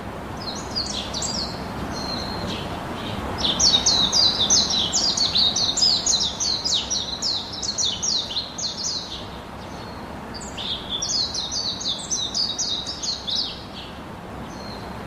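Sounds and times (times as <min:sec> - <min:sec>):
steady background hiss: 0:00.0 - 0:15.0
bird chirping: 0:00.4 - 0:14.9.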